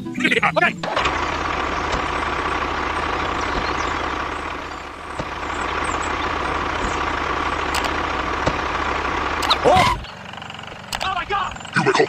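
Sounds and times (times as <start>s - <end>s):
low pulsing engine: 0.7s - 12.0s.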